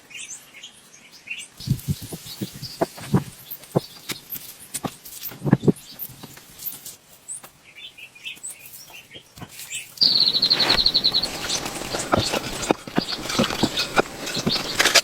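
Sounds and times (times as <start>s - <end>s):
faint bird chirps: 0.0s - 15.0s
bird trilling rapidly: 1.3s - 6.8s, 7.7s - 15.0s.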